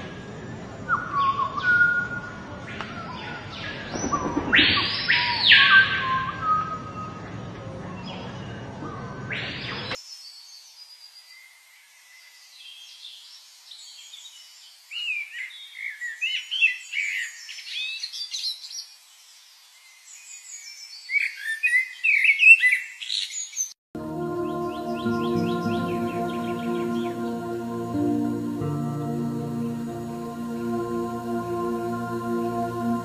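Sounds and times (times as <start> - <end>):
soft music with held tones: 24.0 - 33.0.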